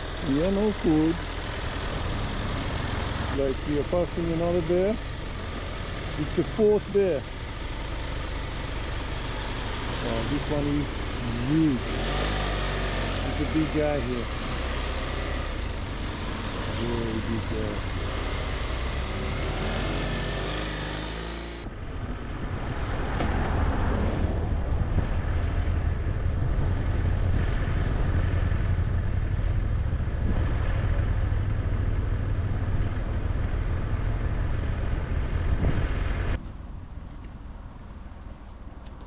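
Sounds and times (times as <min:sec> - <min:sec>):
motorcycle engine running: 0:00.0 - 0:22.6, 0:24.8 - 0:36.4.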